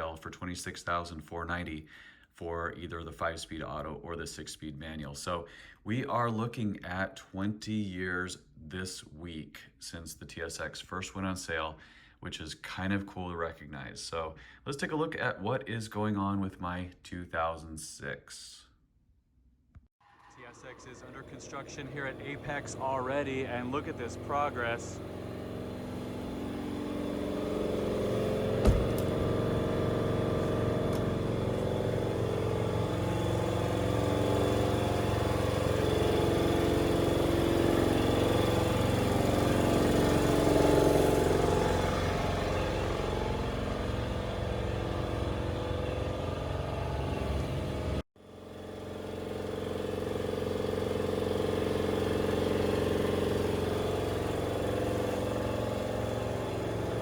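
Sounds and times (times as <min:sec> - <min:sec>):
vehicle engine running: 0:20.4 - 0:57.0.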